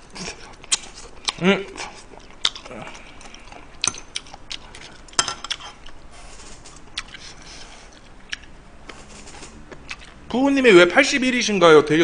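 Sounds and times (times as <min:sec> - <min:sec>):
chewing: 0:00.0 - 0:10.3.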